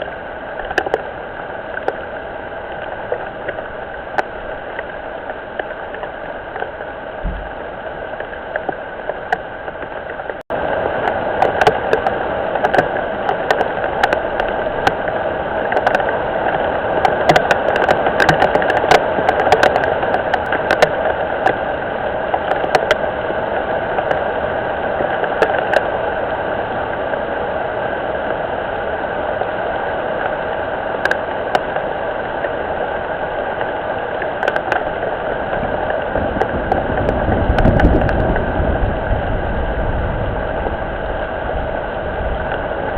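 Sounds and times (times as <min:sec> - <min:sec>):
sharp raindrop ticks: 0:00.0 - 0:24.3, 0:24.9 - 0:26.0, 0:30.2 - 0:41.2
rain falling on pond: 0:00.0 - 0:42.9.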